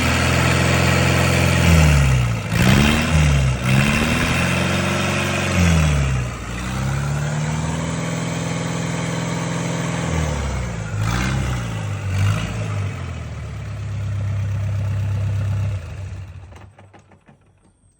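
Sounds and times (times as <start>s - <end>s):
diesel engine revving: 0.0s - 16.6s.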